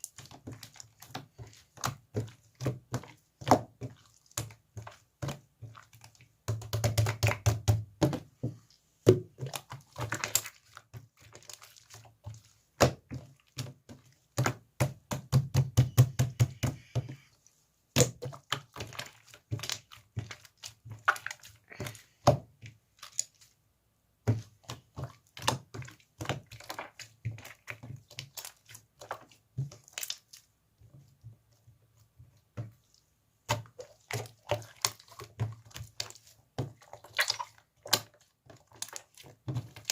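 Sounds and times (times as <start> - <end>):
slime squished by hand: 32.8 - 39.9.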